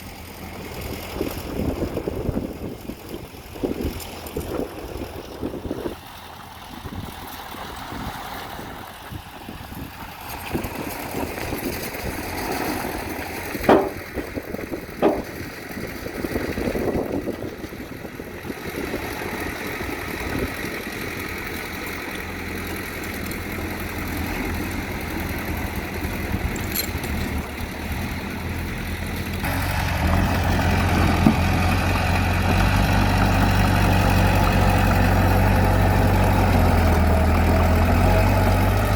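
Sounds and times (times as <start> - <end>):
bulldozer diesel engine running: 0.0 - 38.9
sharp knocks: 13.6 - 14.3, 15.0 - 15.5.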